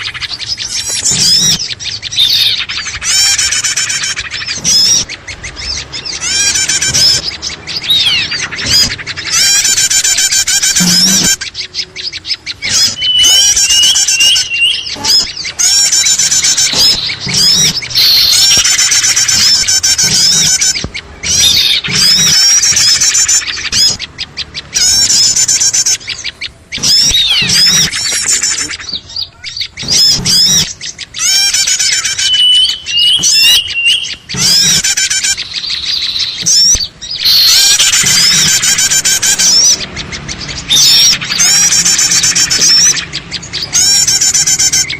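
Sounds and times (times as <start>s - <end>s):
many small birds chirping: 0.0s - 44.9s.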